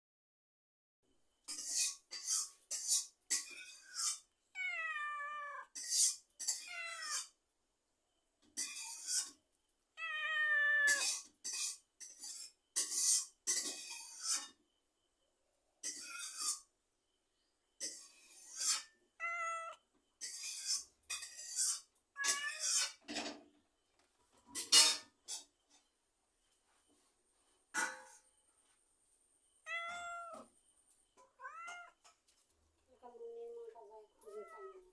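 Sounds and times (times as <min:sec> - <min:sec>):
cat meowing: 0:04.5 - 0:05.8, 0:06.6 - 0:07.3, 0:10.0 - 0:11.2, 0:19.2 - 0:19.8, 0:22.2 - 0:22.9, 0:29.6 - 0:30.5, 0:31.2 - 0:32.1, 0:34.2 - 0:34.9.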